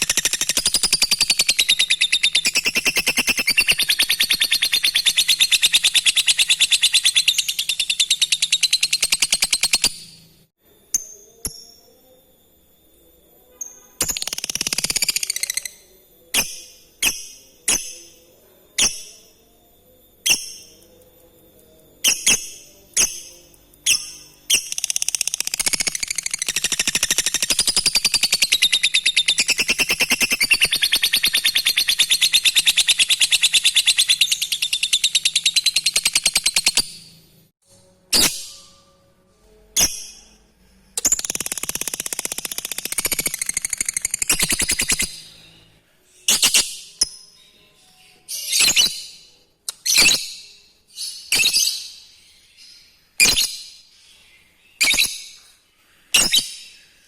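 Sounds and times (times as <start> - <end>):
lovebird calling and trilling: 0.0 - 10.3, 22.0 - 37.1, 41.0 - 45.6, 48.2 - 53.8, 54.7 - 55.4, 56.1 - 56.8
bird chirping: 0.0 - 12.3, 13.4 - 37.5, 38.1 - 57.0.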